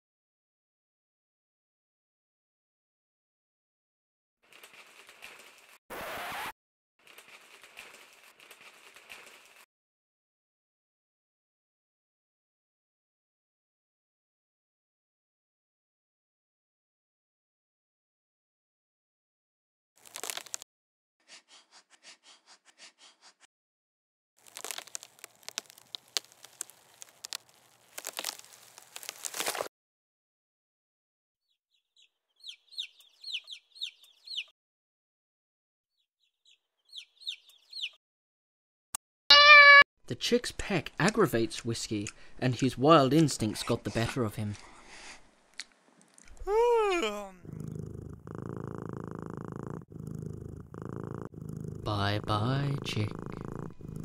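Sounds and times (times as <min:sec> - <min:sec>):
dry twigs crackling and rustling: 0:04.5 - 0:05.8, 0:07.0 - 0:09.6, 0:20.0 - 0:20.6, 0:24.4 - 0:29.7
twigs snapping: 0:20.0 - 0:20.6, 0:24.4 - 0:29.7
claws scratching tree bark: 0:24.4 - 0:29.7.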